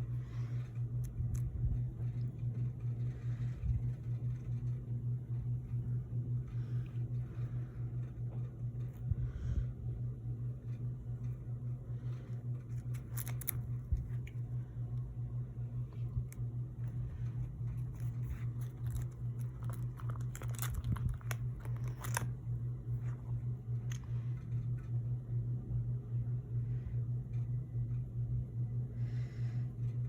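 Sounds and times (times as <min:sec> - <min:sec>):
low hum: 0:00.0 - 0:30.0
plastic packaging crinkling: 0:12.7 - 0:14.4, 0:17.6 - 0:23.3.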